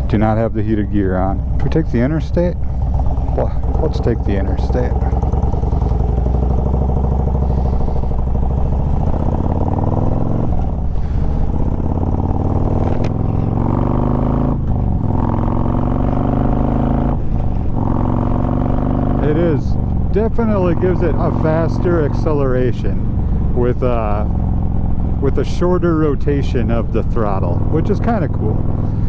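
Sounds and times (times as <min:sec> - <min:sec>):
motorcycle accelerating through gears: 0:00.0 - 0:29.0.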